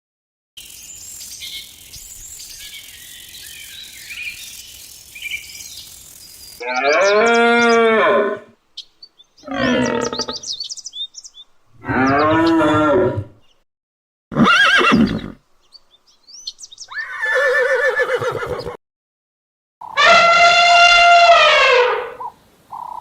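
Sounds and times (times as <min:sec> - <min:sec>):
small birds chirping: 0:00.6 - 0:07.9, 0:08.7 - 0:12.7, 0:13.4 - 0:13.6, 0:14.9 - 0:18.8, 0:22.2 - 0:23.0
large animal calling: 0:06.6 - 0:08.5, 0:09.4 - 0:10.6, 0:11.8 - 0:13.4, 0:19.9 - 0:23.0.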